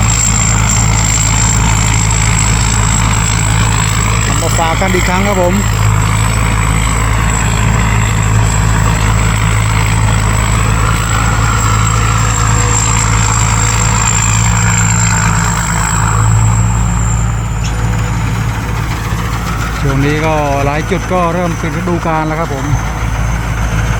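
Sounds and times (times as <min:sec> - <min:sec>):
diesel engine hum: 0:00.0 - 0:23.9
high-pitched whine: 0:00.0 - 0:23.9.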